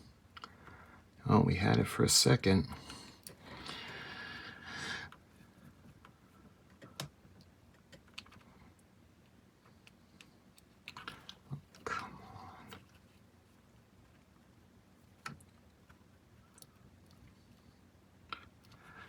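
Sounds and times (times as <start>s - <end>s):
light clicks of plastic parts: 5.1s - 14.3s.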